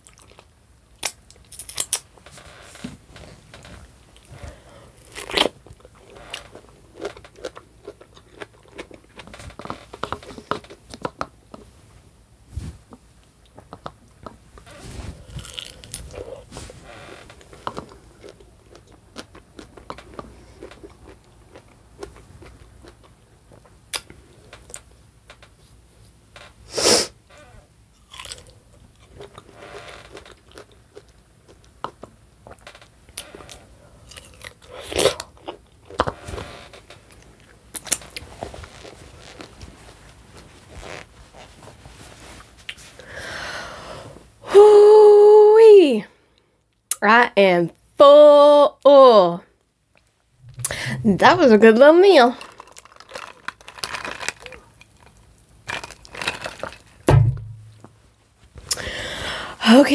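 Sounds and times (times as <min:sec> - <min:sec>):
crunchy bites and chewing: 0:04.9 - 0:11.2, 0:15.1 - 0:24.8, 0:28.0 - 0:36.5, 0:52.4 - 0:57.2.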